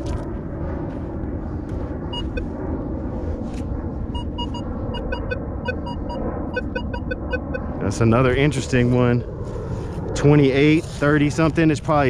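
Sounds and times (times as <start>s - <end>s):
low rumble: 0.0s - 12.0s
metal detector beeps: 2.1s - 2.4s, 4.2s - 7.6s.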